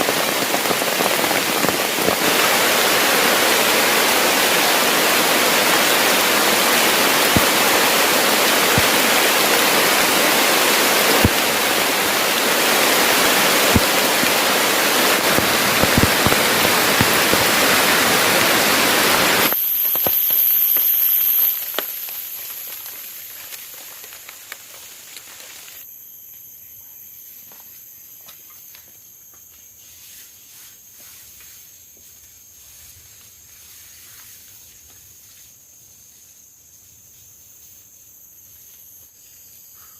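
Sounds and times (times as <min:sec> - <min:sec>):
heavy rain pouring: 0:00.0 - 0:24.6
high-pitched insect trill: 0:00.1 - 0:39.9.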